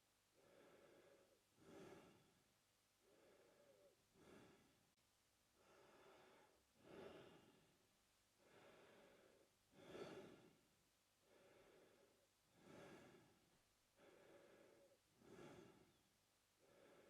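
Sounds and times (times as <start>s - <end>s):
man breathing through mouth: 0.4s - 2.3s, 8.4s - 10.6s, 11.3s - 13.4s, 14.0s - 16.0s.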